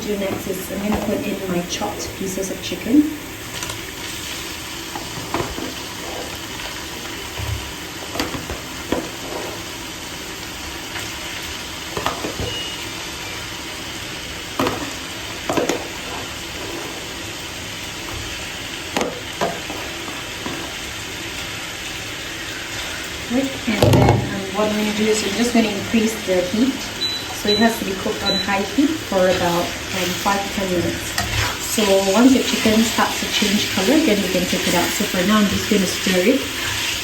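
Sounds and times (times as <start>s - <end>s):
chicken sizzling in oil: 0.1s - 37.0s
utensil scraping pan: 7.4s - 9.8s.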